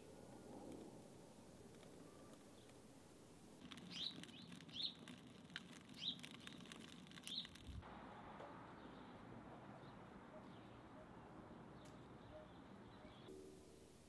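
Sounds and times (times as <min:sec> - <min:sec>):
faint steady hiss: 0:00.0 - 0:09.5, 0:12.8 - 0:14.0
faint crackling clicks: 0:00.6 - 0:02.8, 0:03.6 - 0:07.8
bird chirps: 0:03.8 - 0:05.2, 0:05.9 - 0:06.6, 0:07.2 - 0:07.6, 0:09.8 - 0:13.3.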